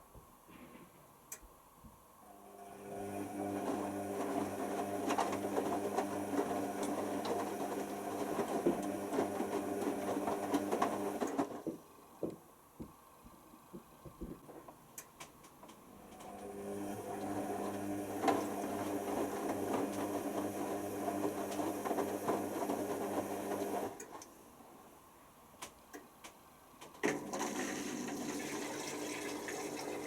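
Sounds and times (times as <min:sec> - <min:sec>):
washer dryer motor humming: 0:02.3 - 0:11.8, 0:15.9 - 0:24.1, 0:27.0 - 0:30.0.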